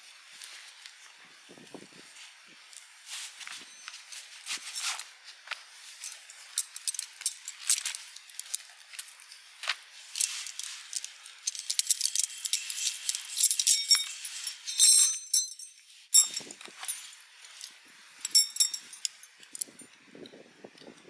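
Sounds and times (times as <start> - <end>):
soft rustling: 2.0 - 14.9
metal parts clinking: 6.0 - 9.3, 10.1 - 19.9.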